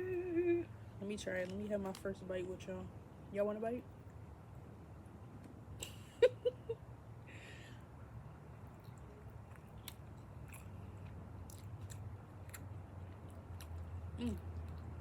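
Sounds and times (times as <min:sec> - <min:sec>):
person chewing chicken wing: 0:08.8 - 0:15.0.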